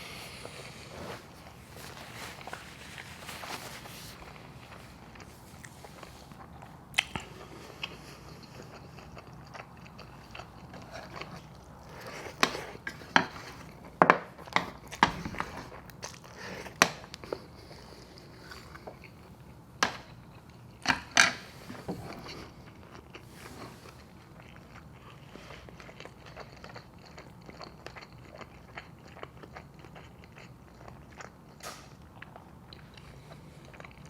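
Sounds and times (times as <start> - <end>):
chewing food: 0.1 - 34.0
mouth smacks and clicks: 6.9 - 7.3.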